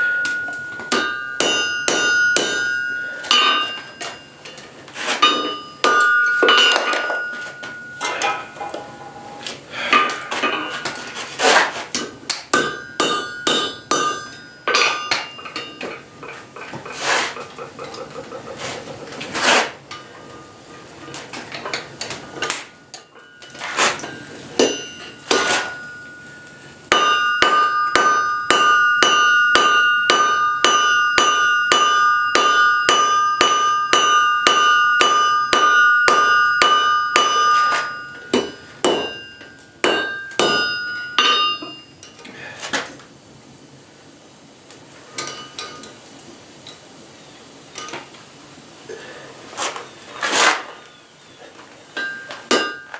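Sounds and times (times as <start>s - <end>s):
hammer ringing on anvil: 0.0s - 4.6s, 5.2s - 11.0s, 12.5s - 16.3s, 22.9s - 42.1s, 52.0s - 52.9s.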